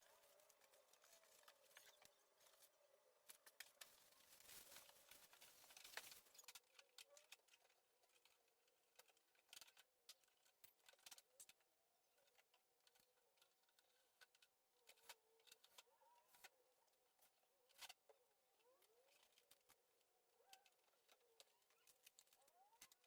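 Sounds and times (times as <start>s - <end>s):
soft rustle: 0.0s - 6.6s.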